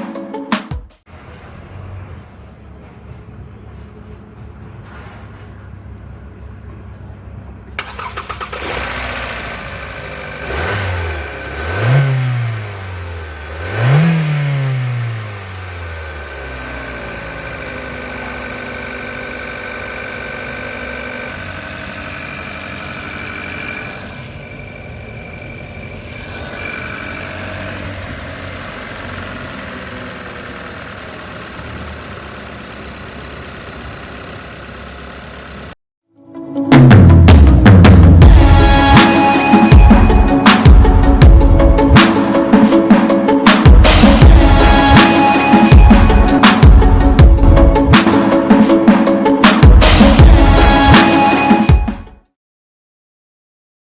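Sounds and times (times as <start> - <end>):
car engine idling: 1.1 - 35.8
car engine starting and revving: 7.8 - 35.8.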